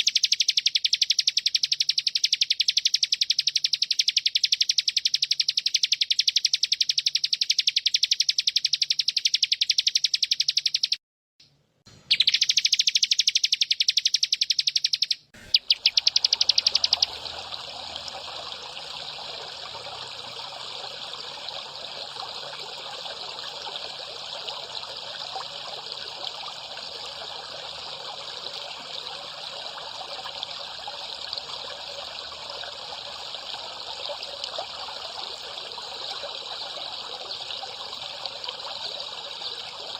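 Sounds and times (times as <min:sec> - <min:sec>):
high-pitched pulsed trill call: 0:12.1 - 0:17.4
water trickling: 0:15.4 - 0:39.9.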